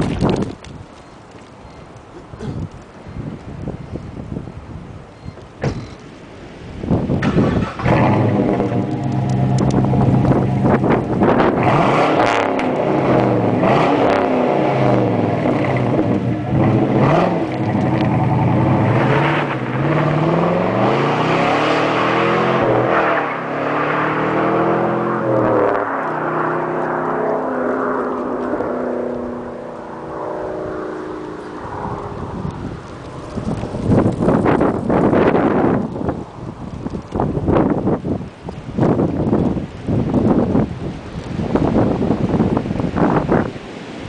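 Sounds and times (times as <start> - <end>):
car engine revving and accelerating: 7.2 - 33.2.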